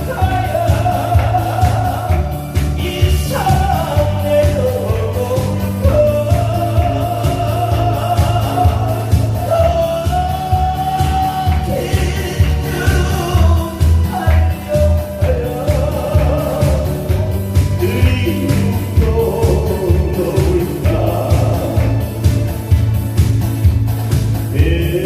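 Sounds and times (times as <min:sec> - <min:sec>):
person singing live: 0:00.0 - 0:23.1, 0:24.4 - 0:25.0
amplified backing track: 0:00.0 - 0:25.0.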